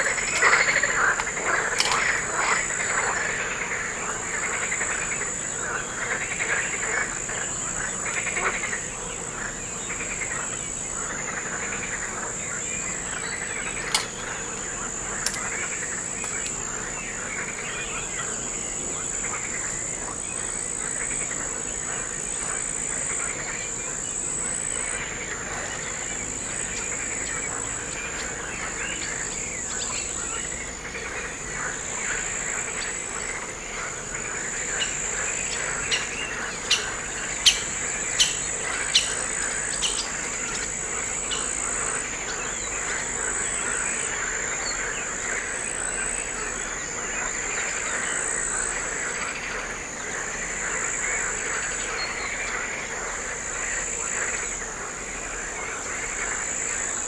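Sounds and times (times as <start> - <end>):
sharp clicks: 0.0 - 2.4, 13.7 - 16.6
crickets trilling: 0.0 - 57.0
chirping calls: 34.8 - 41.6.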